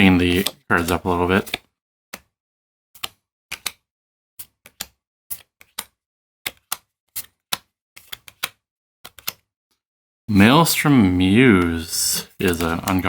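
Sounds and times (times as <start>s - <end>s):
trading cards clicking on table: 0.3s - 2.3s, 3.0s - 3.8s, 4.4s - 9.4s, 12.4s - 13.0s.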